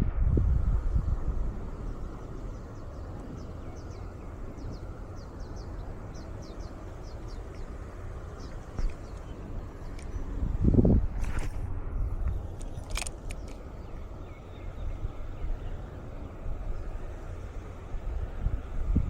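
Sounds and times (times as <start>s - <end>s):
low rumble of wind: 0.0s - 19.0s
bird chirping: 1.6s - 10.4s, 12.6s - 17.1s.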